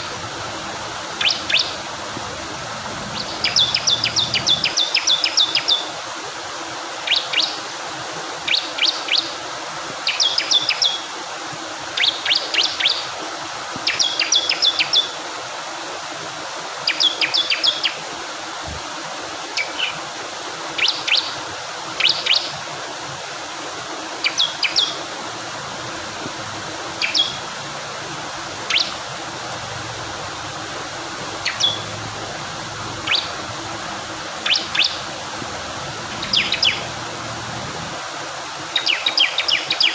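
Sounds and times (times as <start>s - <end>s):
bird chirping in sharp bursts: 0.0s - 5.9s, 24.2s - 25.5s, 26.8s - 27.7s, 28.4s - 37.9s, 38.7s - 39.9s
flowing water rushing: 0.0s - 39.9s.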